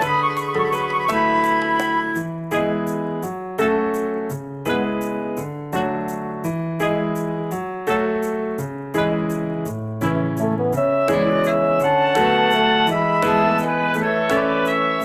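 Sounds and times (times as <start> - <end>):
electric piano chords: 0.0 - 15.0.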